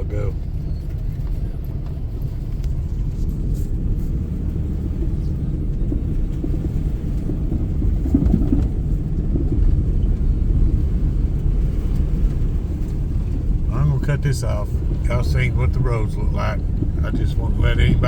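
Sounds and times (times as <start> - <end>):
vehicle engine rumble from inside: 0.0 - 18.0.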